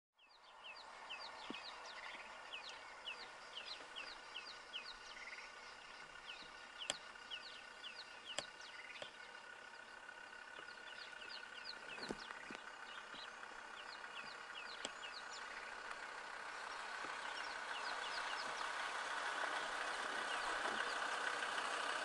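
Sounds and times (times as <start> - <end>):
birds chirping: 0.2 - 22.0
sharp clicks: 6.8 - 7.1, 8.3 - 9.2, 14.8 - 15.1.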